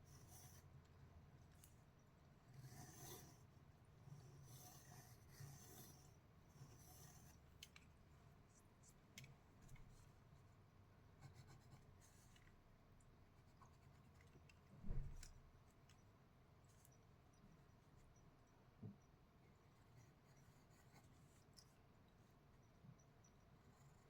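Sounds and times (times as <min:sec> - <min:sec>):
drawing tool scratching paper: 0:00.1 - 0:00.6, 0:02.5 - 0:03.5, 0:04.1 - 0:07.4, 0:19.6 - 0:21.4.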